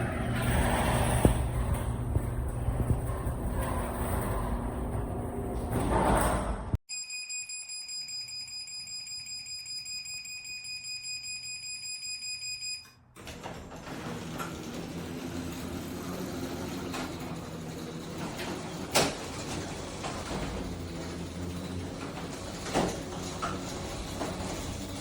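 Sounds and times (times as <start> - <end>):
garage door opener motor: 0.0 - 6.8, 13.1 - 25.0
rapid electronic warning beeps: 6.9 - 12.8.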